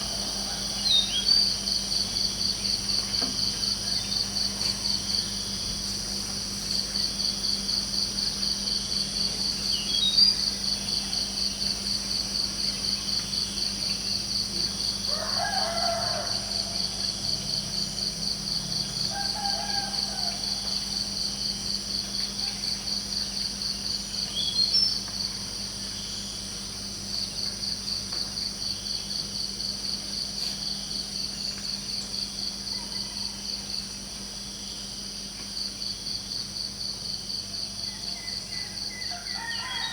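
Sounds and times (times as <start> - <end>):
distant rooster crowing: 0.0 - 1.6, 15.0 - 17.5, 18.7 - 21.6, 32.4 - 34.0, 37.7 - 39.9
crickets chirping: 0.0 - 39.9.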